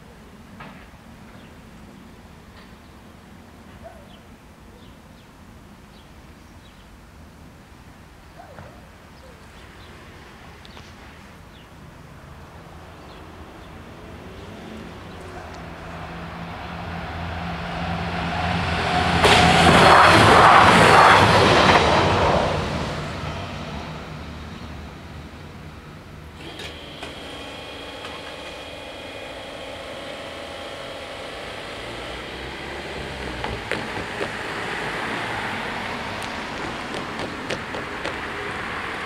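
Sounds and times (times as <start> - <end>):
diesel railcar passing: 0.0 - 39.0
car driving across: 13.6 - 24.4, 26.4 - 39.0
steady humming: 26.4 - 39.0.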